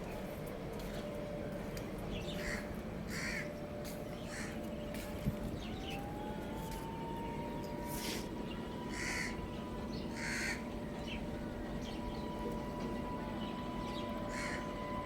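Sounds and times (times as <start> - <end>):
birds calling harshly: 10.1 - 10.6.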